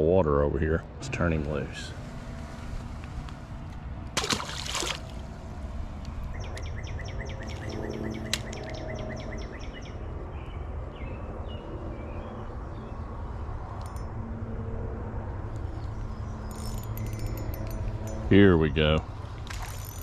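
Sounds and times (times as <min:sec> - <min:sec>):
outdoor background noise: 0:00.0 - 0:20.0
splash in water: 0:04.2 - 0:05.2
songbird singing: 0:06.0 - 0:14.1, 0:15.4 - 0:19.1
bird chirps: 0:06.3 - 0:12.9.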